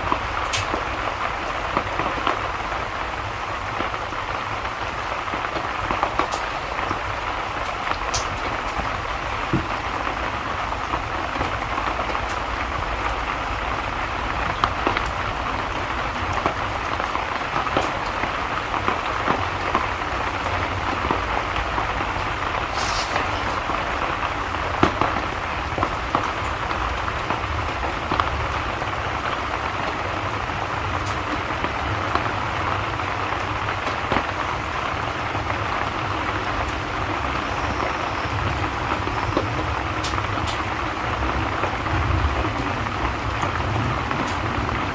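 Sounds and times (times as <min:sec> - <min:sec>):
raindrops ticking: 0:00.0 - 0:44.9
steady rain falling: 0:00.0 - 0:44.9.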